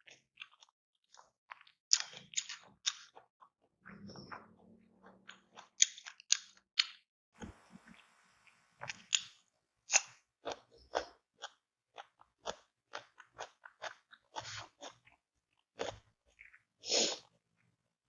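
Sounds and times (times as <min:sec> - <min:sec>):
crunchy chewing: 0:00.0 - 0:03.5, 0:08.8 - 0:17.3.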